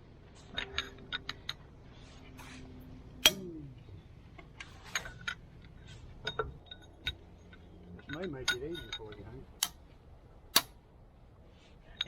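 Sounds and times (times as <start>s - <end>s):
metal tools clinking on engine parts: 0.4s - 1.7s, 4.7s - 9.7s.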